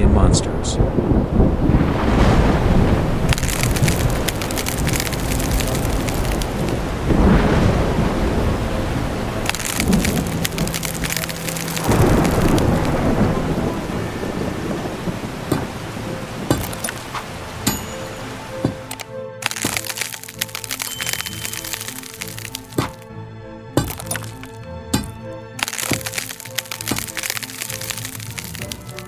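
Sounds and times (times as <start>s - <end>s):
low rumbles of thunder: 0.0s - 10.7s, 11.8s - 17.6s
heavy rain hissing: 0.0s - 23.0s, 23.9s - 29.0s.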